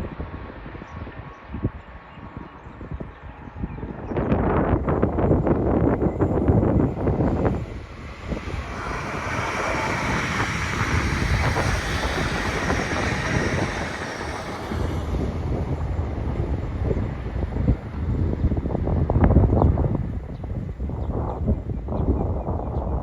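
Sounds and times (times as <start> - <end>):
wind buffeting microphone: 0.0 - 23.0
train wheels on rails: 5.2 - 19.8.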